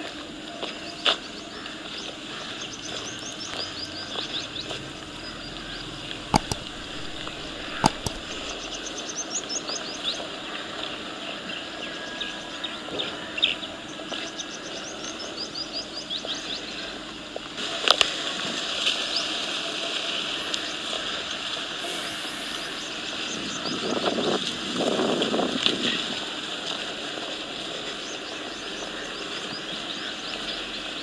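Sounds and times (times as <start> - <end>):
outdoor background noise: 0.0 - 31.0
birds chirping: 2.5 - 9.9
sharp clicks: 6.4 - 8.6.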